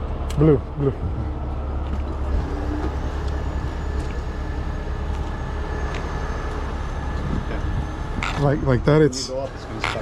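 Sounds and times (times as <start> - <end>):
diesel engine low rumble: 0.0 - 10.0.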